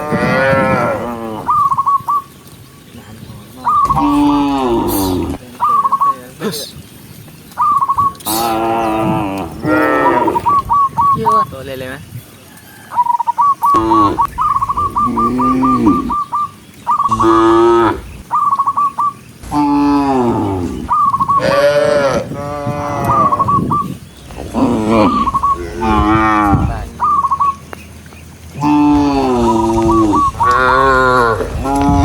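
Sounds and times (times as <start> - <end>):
cattle mooing: 0.0 - 1.6, 3.8 - 5.4, 8.3 - 10.5, 13.7 - 16.3, 17.1 - 18.1, 19.4 - 23.7, 24.3 - 27.3, 28.6 - 32.0.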